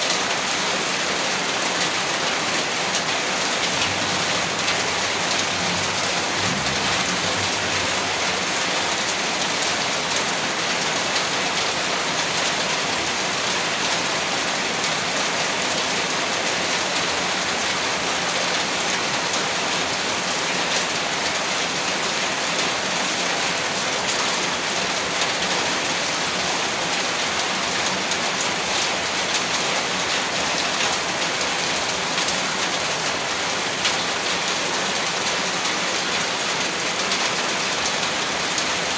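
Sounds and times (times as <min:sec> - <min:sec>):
heavy rain hissing: 0:00.0 - 0:11.6.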